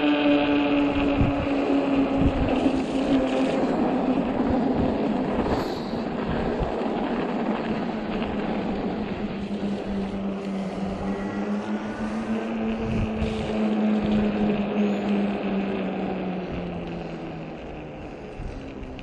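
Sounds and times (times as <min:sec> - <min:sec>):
tires rolling: 0:00.0 - 0:19.0
wind buffeting microphone: 0:00.0 - 0:19.0
electric motor whining: 0:08.4 - 0:19.0.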